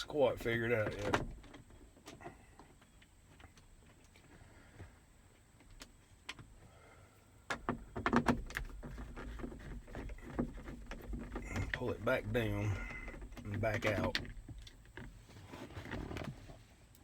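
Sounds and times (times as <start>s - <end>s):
plastic clicks and clattering: 7.5s - 15.2s.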